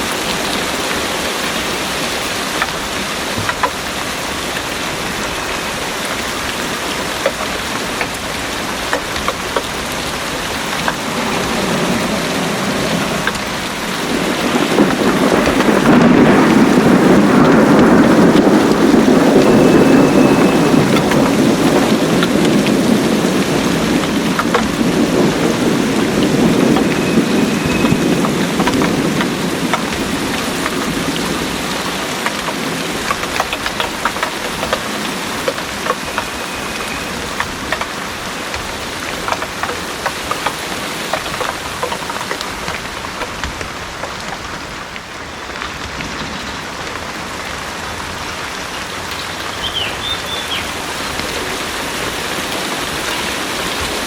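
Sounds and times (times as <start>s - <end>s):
heavy rain falling: 0.0s - 54.0s
raindrops clicking close by: 0.0s - 54.0s
low thunder roll: 8.5s - 39.6s.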